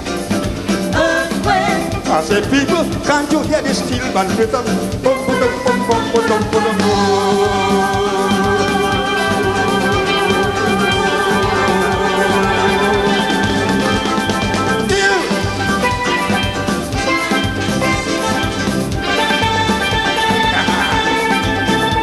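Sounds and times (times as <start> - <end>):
drum kit: 0.0 - 22.0
steelpan melody: 0.0 - 22.0.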